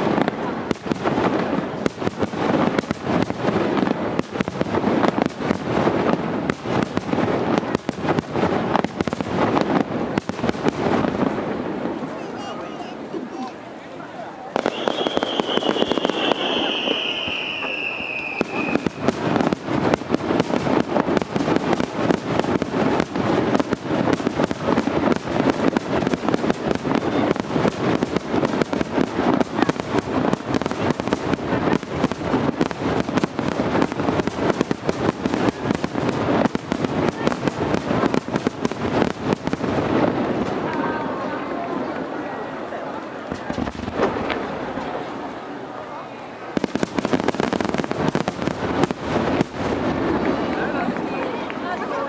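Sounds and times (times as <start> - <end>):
fireworks bangs and crackles: 0.0 - 52.0
falling firework whistle: 14.6 - 19.1.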